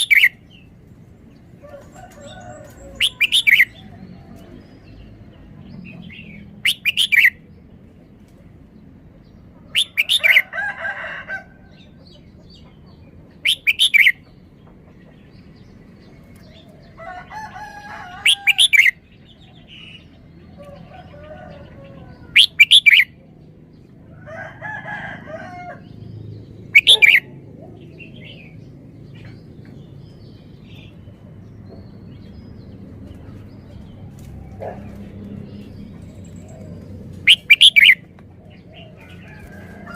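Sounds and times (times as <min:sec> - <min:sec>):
bird chattering calls: 0:00.0 - 0:00.4, 0:03.0 - 0:03.8, 0:06.1 - 0:07.4, 0:09.7 - 0:10.4, 0:13.4 - 0:14.4, 0:22.3 - 0:23.1, 0:26.7 - 0:28.0, 0:37.2 - 0:38.1
bird singing sweet phrases: 0:00.0 - 0:07.7, 0:08.8 - 0:10.4, 0:11.7 - 0:17.2, 0:17.9 - 0:24.0, 0:25.8 - 0:39.6.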